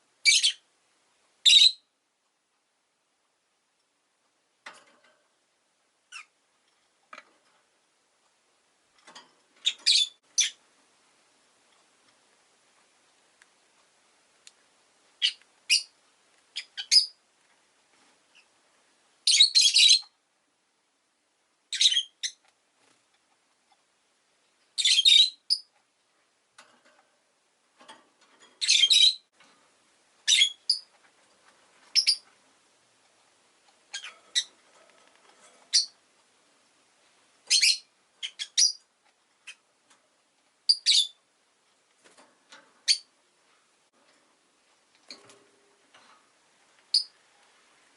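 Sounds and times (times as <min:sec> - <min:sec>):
parrot high-pitched chirps: 0:00.2 - 0:00.6, 0:01.4 - 0:01.9, 0:09.6 - 0:10.6, 0:15.2 - 0:15.9, 0:16.6 - 0:17.2, 0:19.2 - 0:20.1, 0:21.7 - 0:22.4, 0:24.8 - 0:25.7, 0:28.6 - 0:29.2, 0:30.2 - 0:30.9, 0:31.9 - 0:32.2, 0:33.9 - 0:34.6, 0:35.7 - 0:36.0, 0:37.5 - 0:38.8, 0:40.7 - 0:41.2, 0:42.8 - 0:43.1, 0:46.9 - 0:47.1.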